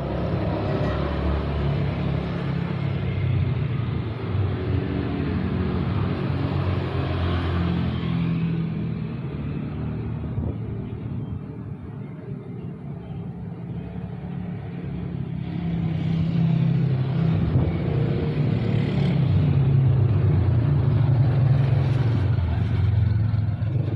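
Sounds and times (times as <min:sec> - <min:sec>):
vehicle engine humming: 0:07.2 - 0:23.9.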